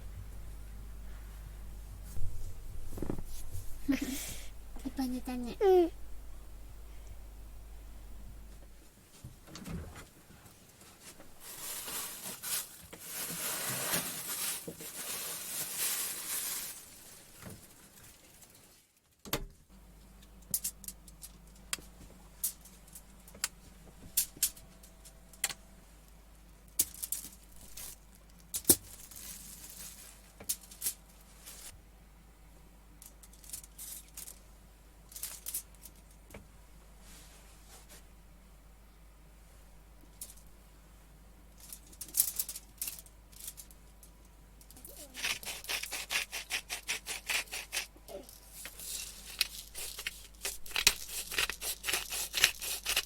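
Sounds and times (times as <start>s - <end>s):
faint low hum: 0.0s - 18.5s
rustling and crinkling handling noise: 0.0s - 19.2s, 20.0s - 31.8s, 33.0s - 38.2s, 41.5s - 45.8s, 48.1s - 53.0s.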